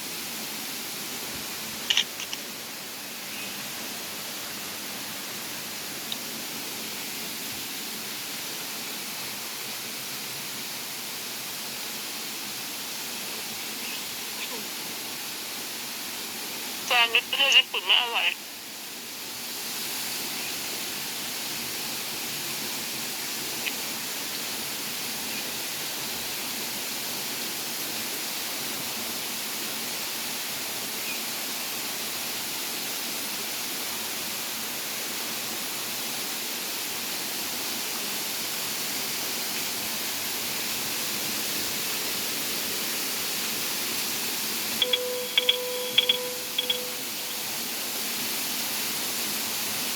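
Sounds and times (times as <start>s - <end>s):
waterfall rushing: 38.0s - 49.9s
short high electronic pips: 44.8s - 47.5s.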